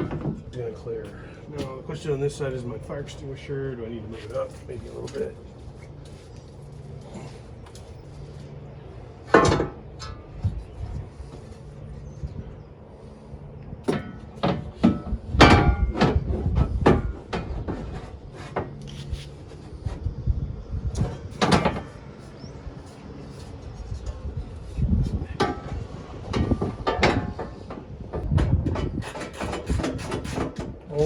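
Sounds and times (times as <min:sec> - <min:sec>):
metal parts knocking and clanking: 0:21.4 - 0:21.9.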